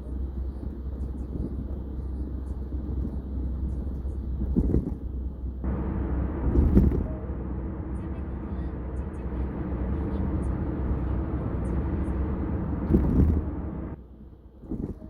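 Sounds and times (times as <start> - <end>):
car road and engine drone: 0.0 - 15.0
brief louder rumbles: 5.6 - 14.0.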